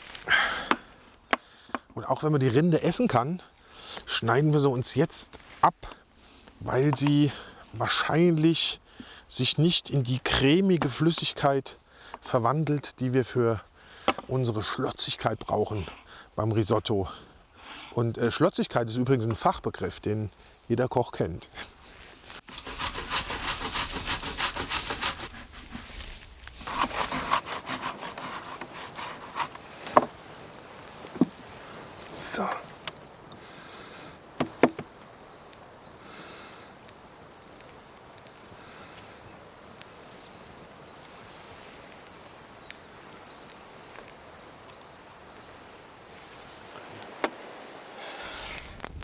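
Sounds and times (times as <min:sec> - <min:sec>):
campfire crackling: 0:00.0 - 0:01.3, 0:21.6 - 0:49.0
scraping hard cheese: 0:22.3 - 0:30.4
steady soft hiss: 0:27.7 - 0:49.0
faint bird chirps: 0:28.2 - 0:46.9
small clicks: 0:48.2 - 0:49.0.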